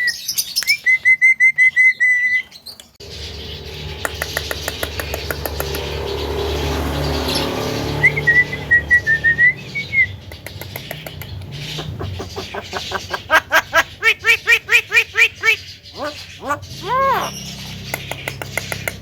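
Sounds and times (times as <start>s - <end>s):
repeated arching bird calls: 3.0s - 19.0s
myna wavering whistle: 8.0s - 10.1s.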